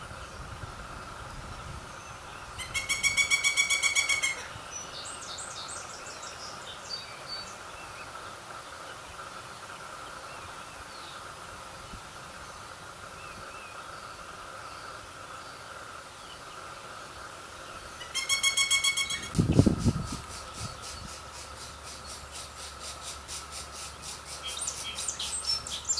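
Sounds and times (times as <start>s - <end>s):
woodpecker chick rattle call: 2.6s - 4.6s, 17.9s - 25.9s.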